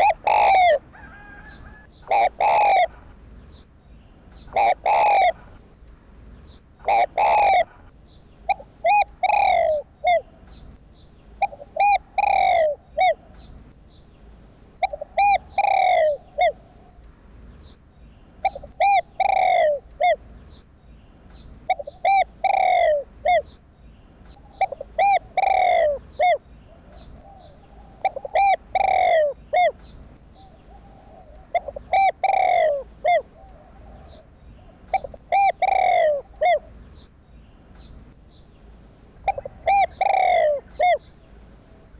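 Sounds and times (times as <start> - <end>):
dove cooing: 0.0 - 3.1, 4.4 - 5.6, 6.8 - 7.9, 8.5 - 10.5, 11.4 - 13.5, 14.8 - 17.0, 18.4 - 20.2, 21.7 - 23.6, 24.4 - 36.8, 39.2 - 41.9.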